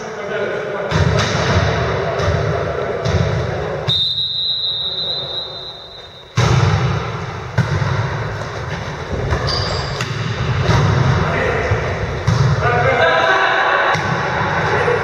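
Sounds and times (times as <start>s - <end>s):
gym hall noise: 0.0s - 15.0s
referee's whistle blast: 3.9s - 6.4s.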